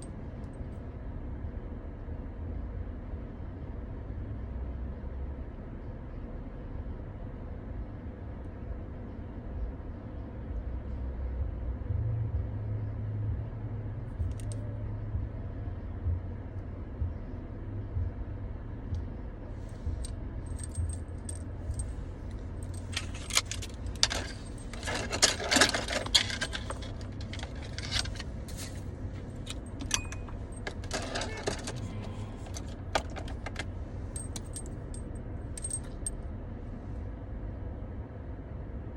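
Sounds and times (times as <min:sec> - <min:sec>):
low steady hum: 0:00.0 - 0:38.9
small hard objects jingling: 0:22.6 - 0:33.6.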